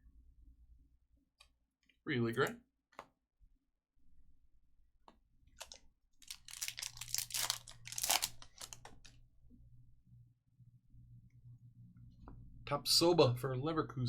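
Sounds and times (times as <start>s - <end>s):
foil wrapper tearing and crinkling: 5.6s - 9.1s.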